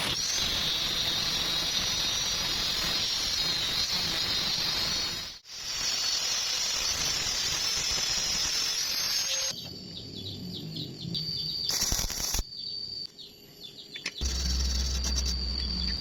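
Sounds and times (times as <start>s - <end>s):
arc welding hiss: 0.0s - 9.5s, 11.7s - 12.4s.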